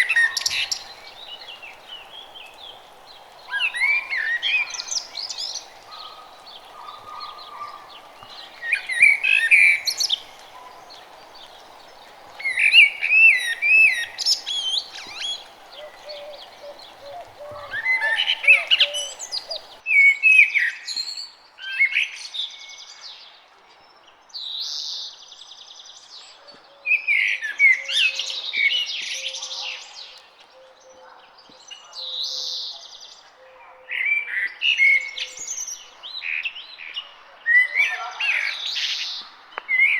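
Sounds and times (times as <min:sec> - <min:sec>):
songbirds warbling: 0:00.0 - 0:19.8.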